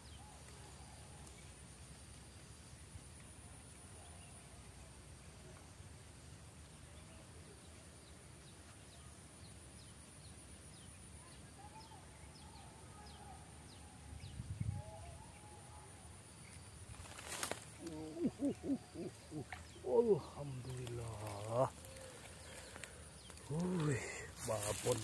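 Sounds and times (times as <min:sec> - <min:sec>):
birdsong chirps: 0:06.6 - 0:25.0.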